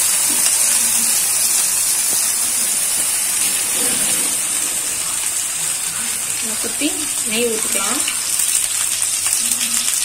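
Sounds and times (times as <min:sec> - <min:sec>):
bread frying with sizzling hiss: 0:00.0 - 0:10.0.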